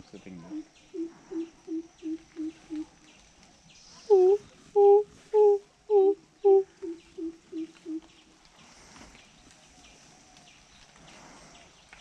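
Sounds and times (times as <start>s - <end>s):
high insect drone: 0.0s - 3.2s.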